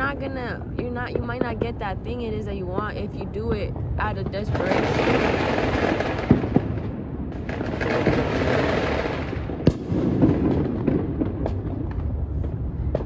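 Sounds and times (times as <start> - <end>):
distant fireworks rumble: 0.0 - 13.0
firework crackles: 0.0 - 13.0
firework sharp crack: 3.2 - 13.0.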